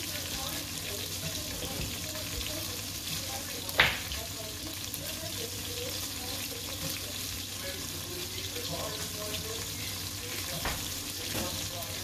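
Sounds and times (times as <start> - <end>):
chicken frying in oil: 0.0 - 12.0.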